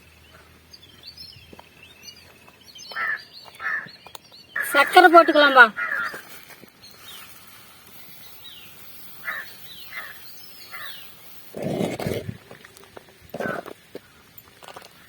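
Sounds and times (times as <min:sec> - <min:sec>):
birds chirping: 0:00.0 - 0:12.5
faint background hiss: 0:04.7 - 0:11.8
noisy scrape or rustle: 0:06.1 - 0:09.9.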